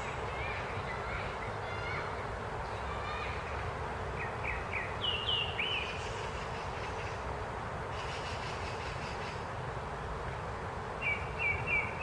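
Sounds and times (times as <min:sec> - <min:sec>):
low rumble and hiss: 0:00.0 - 0:12.0
birds chirping: 0:02.7 - 0:07.3, 0:11.0 - 0:12.0.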